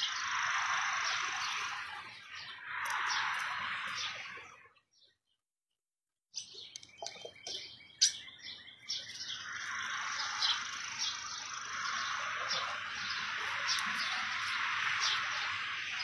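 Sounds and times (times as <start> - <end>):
small birds chirping: 0.0 - 5.5, 6.3 - 16.0
outdoor background hiss: 7.9 - 16.0.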